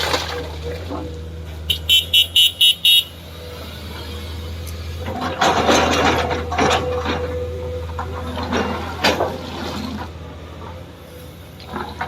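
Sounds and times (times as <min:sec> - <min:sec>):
diesel machinery running: 0:00.0 - 0:12.0
rapid beeping alarm: 0:01.7 - 0:03.1.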